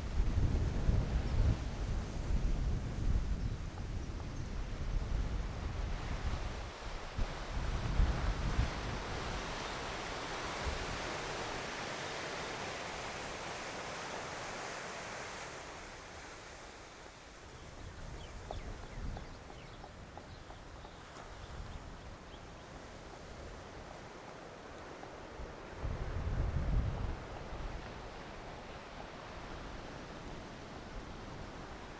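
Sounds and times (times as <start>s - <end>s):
wind buffeting microphone: 0.0s - 9.9s, 17.6s - 22.5s, 25.6s - 31.9s.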